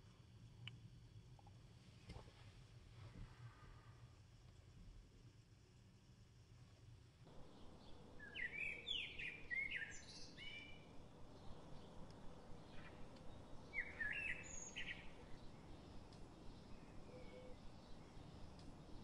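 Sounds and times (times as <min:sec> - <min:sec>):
faint outdoor hiss: 0:00.0 - 0:19.0
songbird singing: 0:07.3 - 0:19.0.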